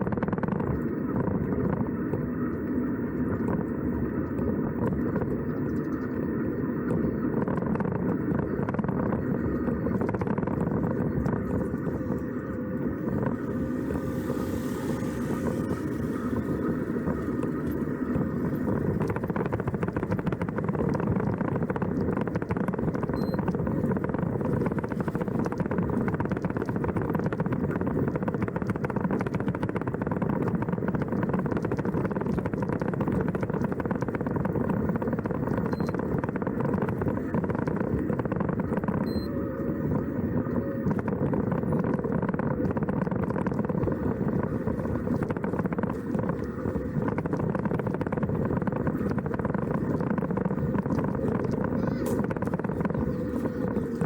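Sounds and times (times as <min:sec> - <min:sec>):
vehicle engine running: 0:06.9 - 0:39.3, 0:39.9 - 0:54.0
road noise: 0:10.1 - 0:23.0, 0:40.8 - 0:54.0.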